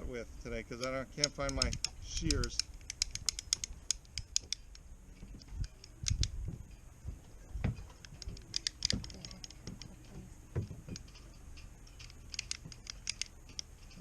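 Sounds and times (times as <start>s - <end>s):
pipe cutter clicking on rope: 0.8s - 6.4s, 8.0s - 14.0s
dull handling knocks: 6.4s - 11.2s.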